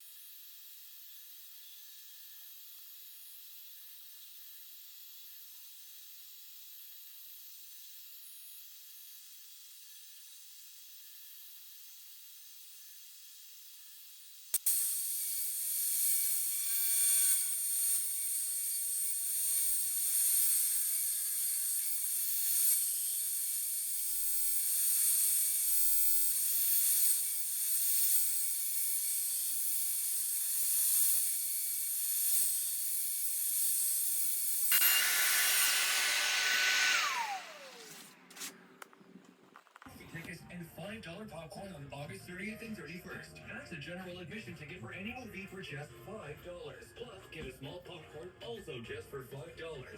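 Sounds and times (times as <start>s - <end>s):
router cutting wood: 0.0s - 39.5s
spindle winding down: 34.6s - 38.9s.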